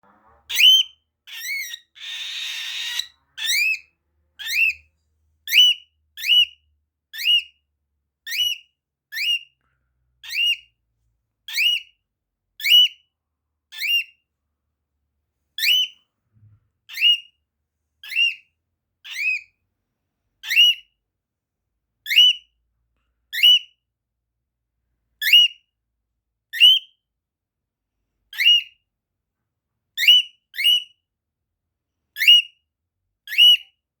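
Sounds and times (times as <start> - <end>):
bird whistle-like calls: 0.5 - 3.8.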